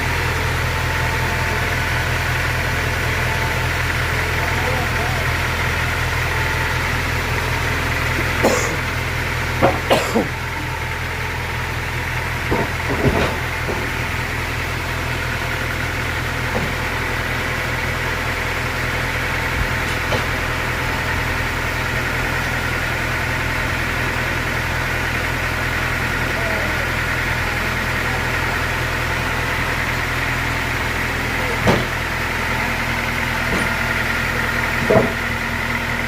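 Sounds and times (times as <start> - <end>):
engine idling: 0.0 - 36.0
knocks and clatters: 12.4 - 14.0, 34.8 - 35.3.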